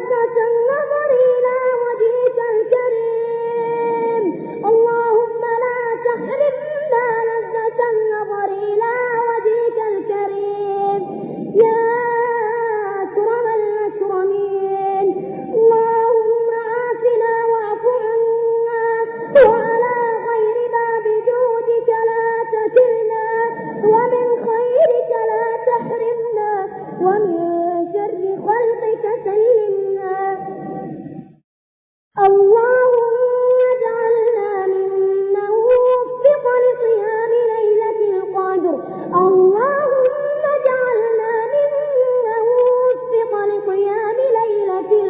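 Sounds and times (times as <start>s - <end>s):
high voice chanting melodically: 0.0s - 31.4s, 32.2s - 45.0s
sharp clicks: 32.9s - 34.4s, 42.6s - 43.0s.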